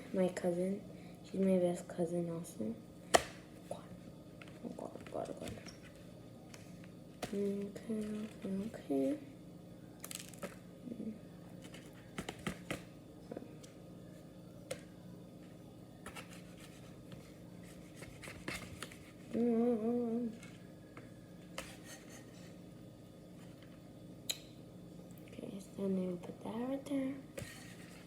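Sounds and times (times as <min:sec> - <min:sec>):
wavering hummed tone: 0:19.4 - 0:22.5.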